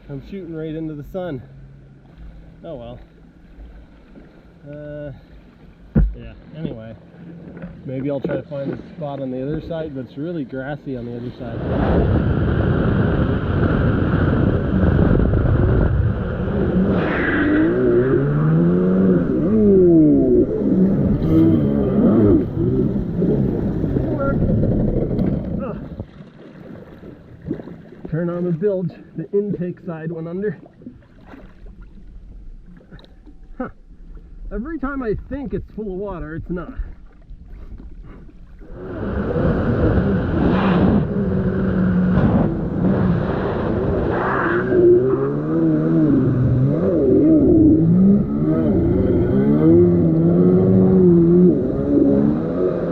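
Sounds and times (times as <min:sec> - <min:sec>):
jet ski engine revving: 0:00.0 - 0:28.8, 0:38.3 - 0:52.9
rushing rumble: 0:11.0 - 0:26.2, 0:38.6 - 0:52.9
wind noise: 0:11.2 - 0:27.8, 0:34.4 - 0:52.9
rushing water: 0:20.2 - 0:41.7.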